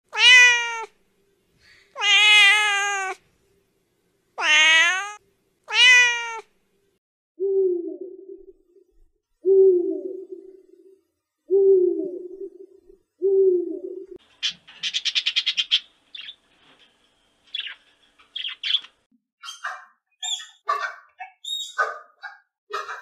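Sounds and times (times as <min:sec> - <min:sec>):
cat meowing: 0:00.1 - 0:01.0, 0:02.0 - 0:03.2, 0:04.4 - 0:06.5.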